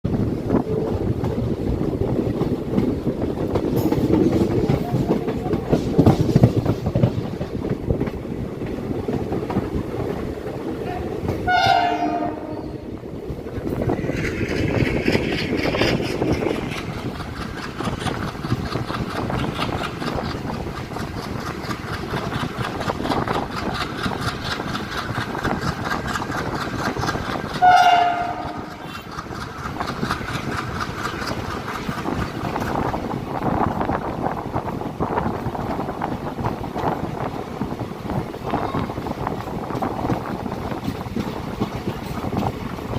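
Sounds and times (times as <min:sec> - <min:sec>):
train wheels clickety-clack: 0:00.1 - 0:42.9
train horn blast: 0:10.8 - 0:13.0, 0:27.6 - 0:28.8.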